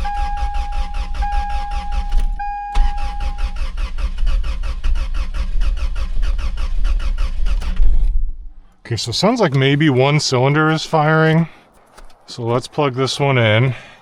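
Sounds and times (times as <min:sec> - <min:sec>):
electronic warning tone: 0:00.0 - 0:03.7
engine cranking and chugging: 0:00.0 - 0:08.8, 0:09.4 - 0:13.3.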